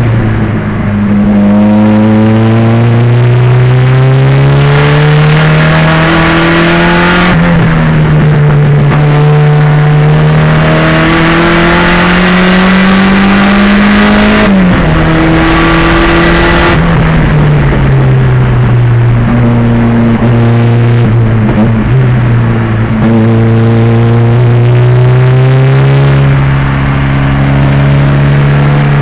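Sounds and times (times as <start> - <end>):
car engine pulling hard: 0.0 - 29.0.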